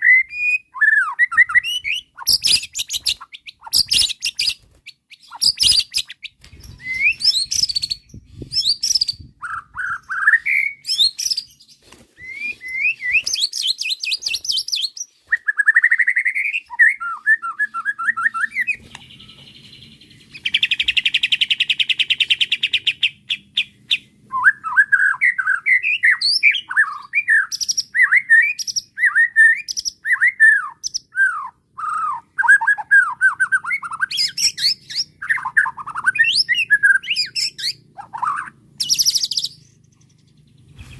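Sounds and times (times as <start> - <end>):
bird whistled song: 0.0 - 40.9.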